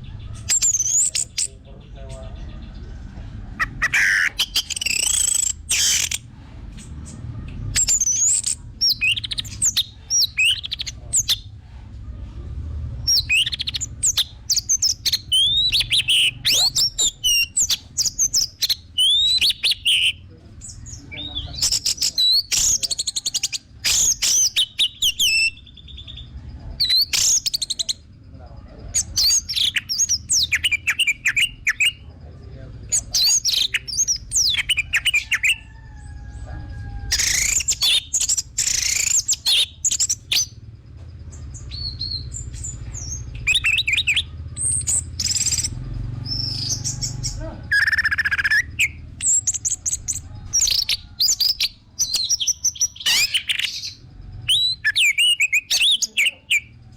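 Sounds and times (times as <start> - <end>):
bird singing whistles and trills: 3.6 - 6.2, 7.8 - 11.5, 13.1 - 28.0, 28.9 - 32.1, 32.9 - 35.6, 37.1 - 40.6, 41.3 - 56.7
low rumble: 39.9 - 43.6.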